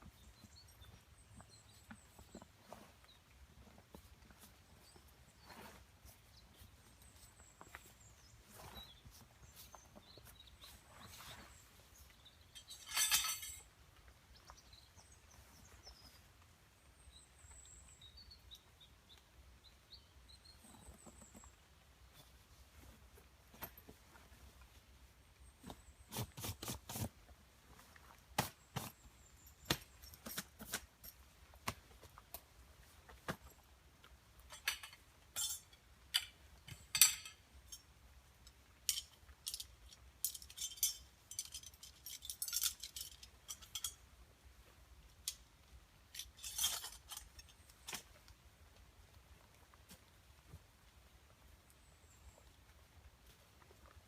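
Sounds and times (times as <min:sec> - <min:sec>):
metal camp gear clinking: 0:12.0 - 0:13.8, 0:28.9 - 0:31.4, 0:34.3 - 0:44.2, 0:45.2 - 0:48.2.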